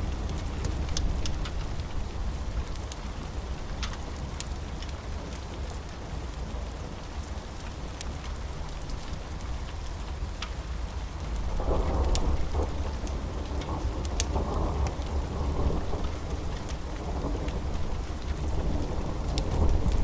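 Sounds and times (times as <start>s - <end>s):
steady rain: 0.0s - 20.0s
thunder rumbling: 11.6s - 20.0s.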